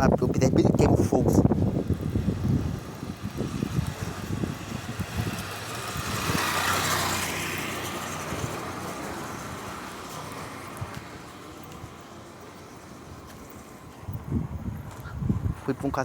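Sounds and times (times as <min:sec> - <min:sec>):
car passing by: 0:01.4 - 0:15.8.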